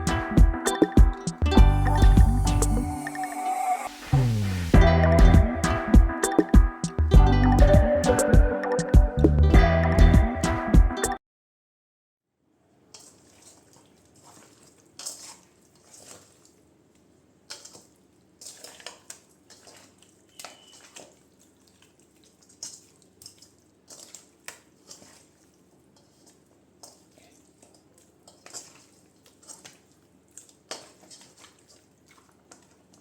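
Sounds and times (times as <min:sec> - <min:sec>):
water splashing in a sink: 0:12.9 - 0:33.0.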